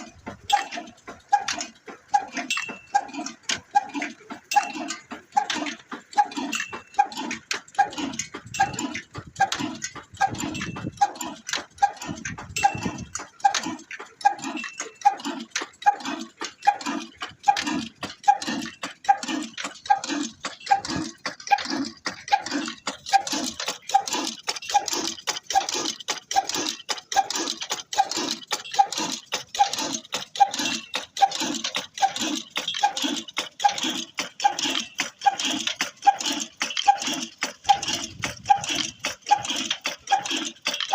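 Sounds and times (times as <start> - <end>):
sharp mechanical clicking: 0.0 - 40.9
stationary engine exhaust beats: 0.0 - 40.9.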